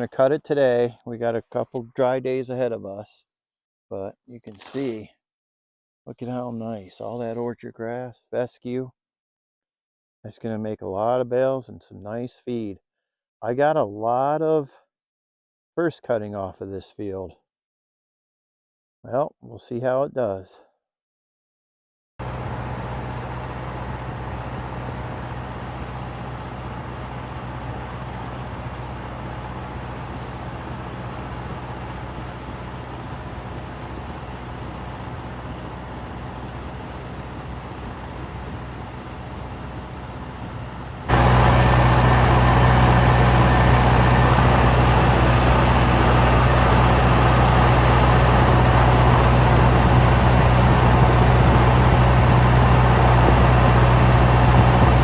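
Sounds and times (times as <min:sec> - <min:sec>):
tractor engine droning: 0:22.2 - 0:55.0.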